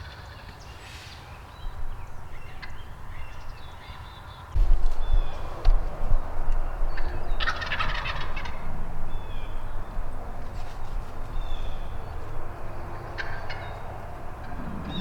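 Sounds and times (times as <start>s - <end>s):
turkey gobbling: 0.0s - 0.6s, 2.3s - 3.4s, 6.9s - 9.8s, 10.4s - 15.0s.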